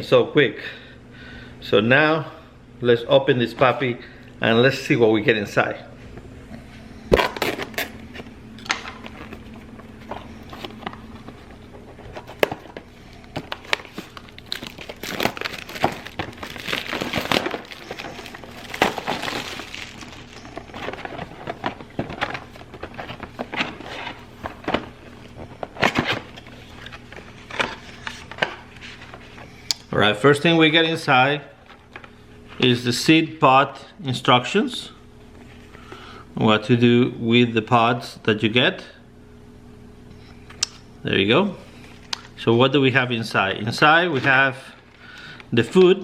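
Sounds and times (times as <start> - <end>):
cardboard packaging rustling: 7.1 - 29.6.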